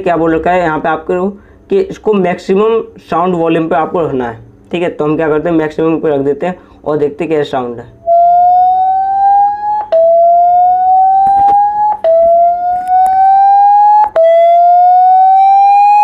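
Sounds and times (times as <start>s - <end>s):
rising tone from phone speaker: 8.0s - 16.0s.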